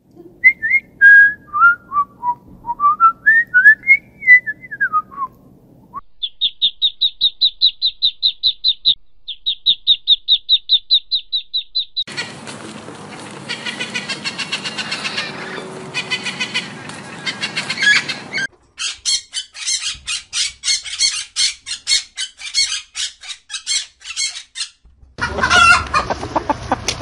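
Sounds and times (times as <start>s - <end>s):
goslings peeping: 6.2s - 12.4s, 13.4s - 26.5s.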